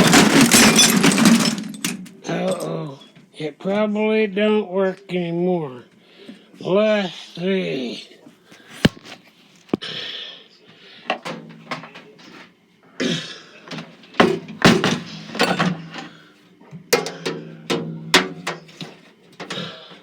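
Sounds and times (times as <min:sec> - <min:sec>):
sharp knocks and clunks: 0:16.9 - 0:18.9.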